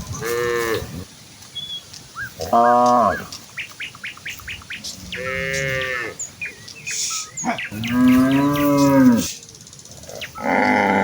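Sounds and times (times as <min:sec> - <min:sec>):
birds chirping: 0:00.0 - 0:11.0
cattle mooing: 0:07.7 - 0:09.3, 0:10.4 - 0:11.0.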